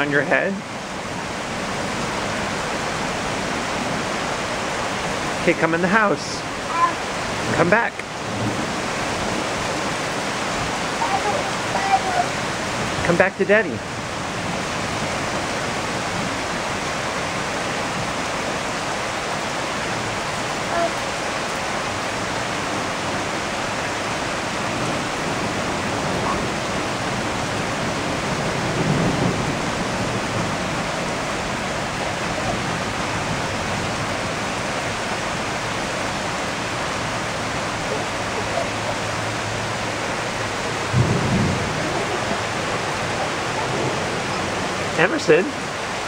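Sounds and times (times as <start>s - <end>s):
heavy rain pouring: 0.0s - 46.0s
low rumbles: 23.0s - 45.1s.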